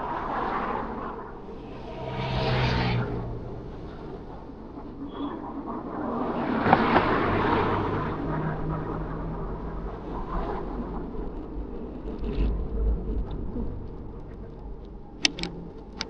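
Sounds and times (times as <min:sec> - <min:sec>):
steady low rumble: 0:00.0 - 0:16.0
motor vehicle passing: 0:00.2 - 0:05.0.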